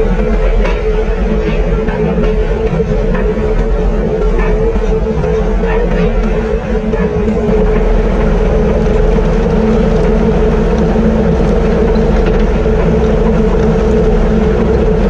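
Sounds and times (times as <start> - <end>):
harvester mechanical drone: 0.0 - 15.0.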